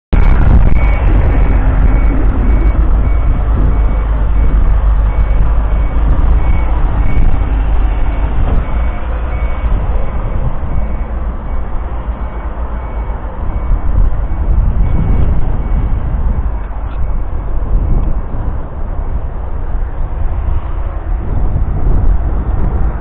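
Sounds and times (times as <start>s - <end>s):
diesel tractor engine running: 0.1s - 23.0s
faint high beeping: 0.2s - 17.5s.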